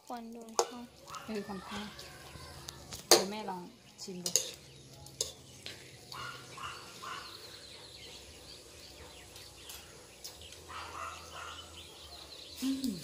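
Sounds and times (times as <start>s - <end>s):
high faint bird chirps: 3.5s - 13.0s.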